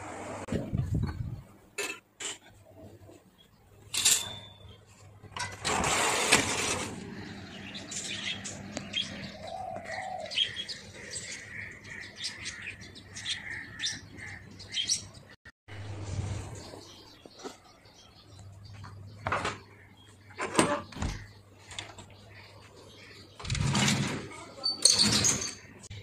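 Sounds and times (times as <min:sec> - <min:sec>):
small birds chirping: 0:07.0 - 0:23.6.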